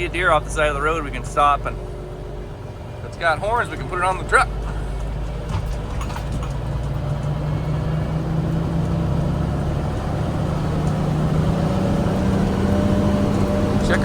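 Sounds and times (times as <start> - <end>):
truck diesel engine revving: 0.0 - 14.0
light rattles: 3.4 - 7.5.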